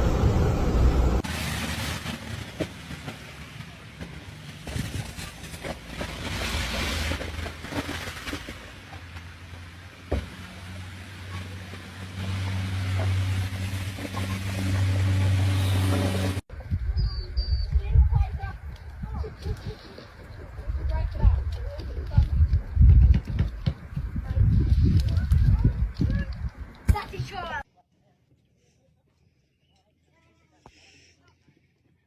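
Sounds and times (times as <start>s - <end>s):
vehicle engine humming: 0.0s - 1.2s, 10.4s - 16.5s.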